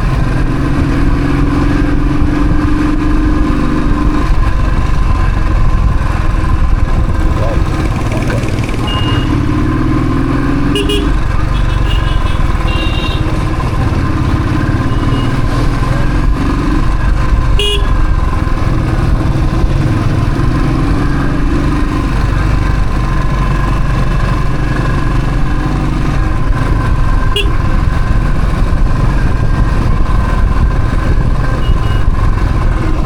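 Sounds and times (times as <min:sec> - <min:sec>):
motorcycle engine running: 0:00.0 - 0:33.0
short horn beeps: 0:08.8 - 0:09.4, 0:10.7 - 0:13.3, 0:17.6 - 0:18.0, 0:31.6 - 0:32.1.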